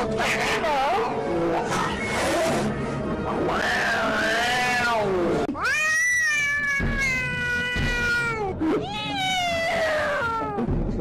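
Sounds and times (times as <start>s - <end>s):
cat yowling: 3.4s - 10.7s.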